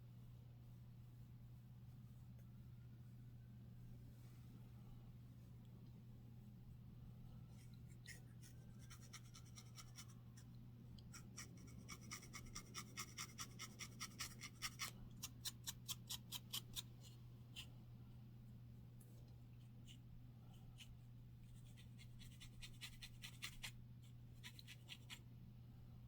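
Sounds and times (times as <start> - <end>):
scratching on a scalp: 7.5 - 10.5, 11.1 - 17.8, 19.5 - 25.3.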